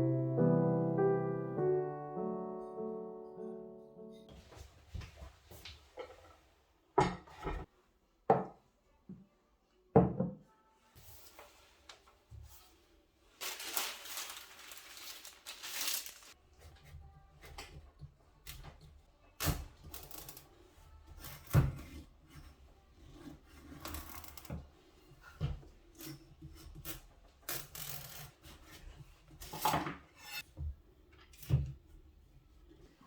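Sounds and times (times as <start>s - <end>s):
scraping rustles: 11.1s - 16.4s.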